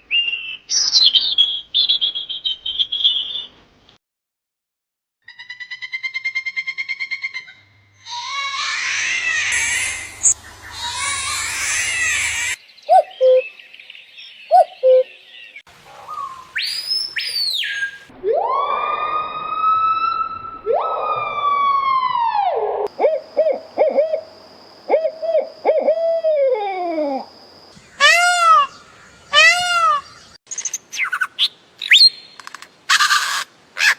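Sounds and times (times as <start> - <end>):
long downward sliding calls: 8.1 - 12.6, 16.2 - 23.1, 27.9 - 30.2, 30.9 - 32.3
high rising and falling whistle: 16.5 - 22.6.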